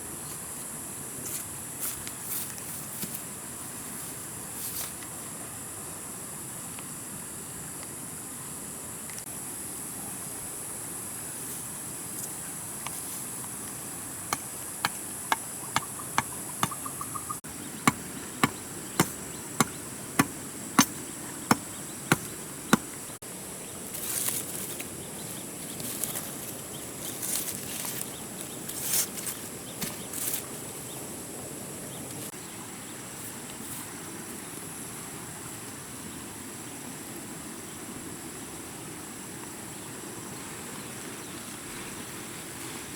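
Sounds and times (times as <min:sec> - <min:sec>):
insects buzzing: 0:00.0 - 0:42.9
sharp knocks: 0:14.3 - 0:17.0, 0:17.8 - 0:23.0
scraping rustles: 0:25.7 - 0:30.6.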